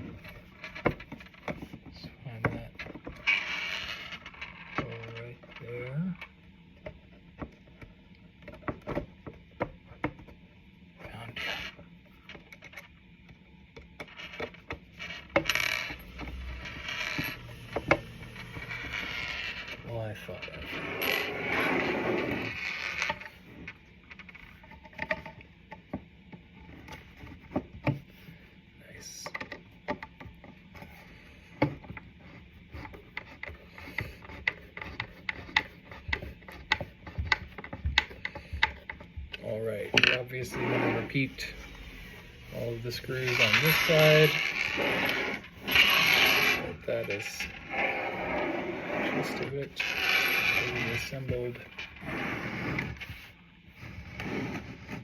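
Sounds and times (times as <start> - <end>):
screw scraping in wood: 2.8 - 5.8, 14.0 - 25.4, 30.8 - 55.0.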